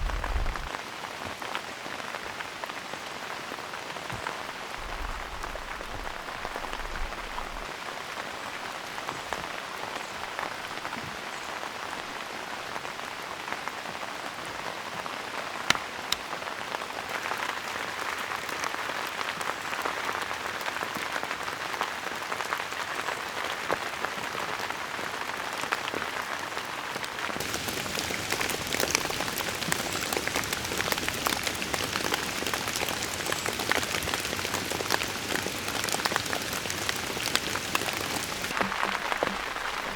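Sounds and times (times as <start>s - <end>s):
steady rain falling: 0.0s - 39.9s
raindrops ticking: 27.4s - 39.9s.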